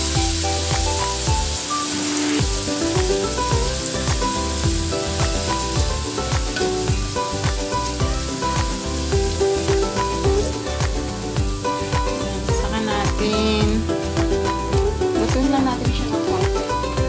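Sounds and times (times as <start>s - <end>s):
background music with beat: 0.0s - 17.0s
vegetables sizzling in oil: 0.0s - 17.0s.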